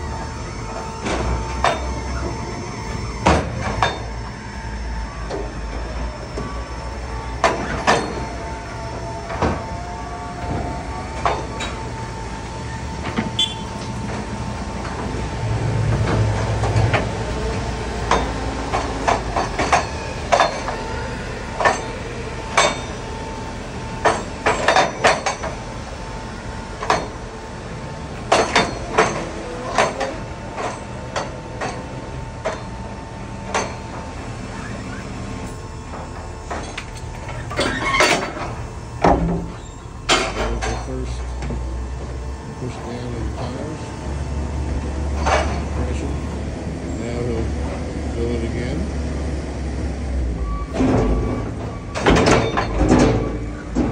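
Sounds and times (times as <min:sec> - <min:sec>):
machine whine: 0:00.0 - 0:53.9
sharp metal clanks and knocks: 0:18.1 - 0:20.8, 0:21.6 - 0:22.9, 0:24.0 - 0:25.6, 0:28.3 - 0:32.7, 0:33.5 - 0:34.0, 0:35.4 - 0:41.5, 0:45.2 - 0:45.7, 0:50.8 - 0:53.9.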